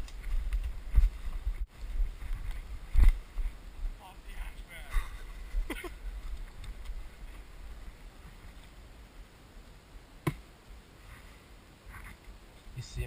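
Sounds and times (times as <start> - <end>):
wind rumble on microphone: 0.0 - 9.1.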